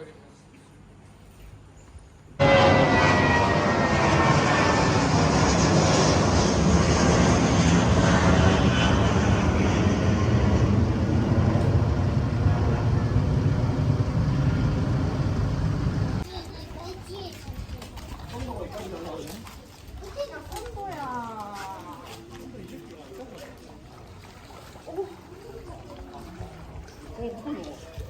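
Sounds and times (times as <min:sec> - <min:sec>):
jet engines roaring: 0:02.4 - 0:16.2.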